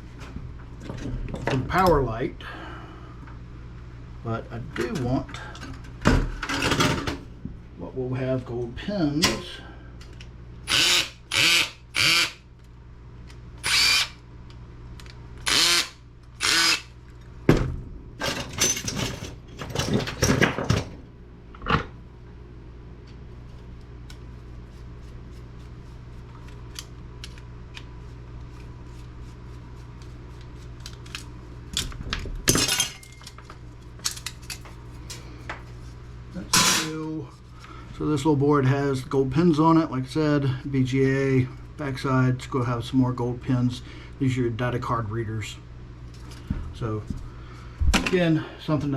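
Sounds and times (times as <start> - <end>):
cordless drill bursts: 10.7 - 12.4, 13.6 - 14.2, 15.4 - 16.9
metal and plastic parts rattling: 18.2 - 21.0.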